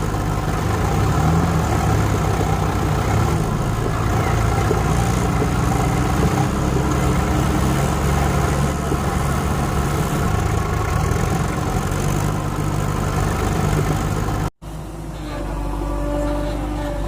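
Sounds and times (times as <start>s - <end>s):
large vehicle engine idling: 0.0s - 17.0s.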